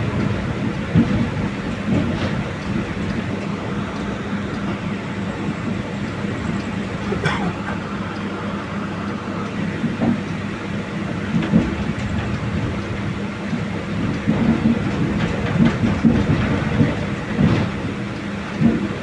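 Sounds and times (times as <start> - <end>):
wheels knocking and clattering: 0.0 - 7.4, 9.5 - 19.0
train rumbling on track: 0.0 - 19.0.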